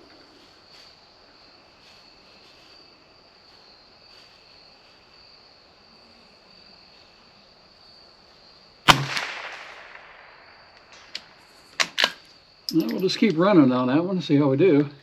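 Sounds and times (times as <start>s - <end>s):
crickets chirring: 0.0s - 15.0s
rifle shot with echo: 8.9s - 11.4s.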